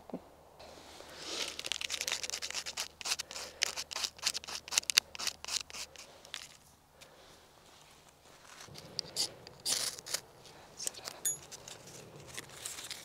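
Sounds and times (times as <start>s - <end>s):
bark being scraped: 1.4s - 6.5s.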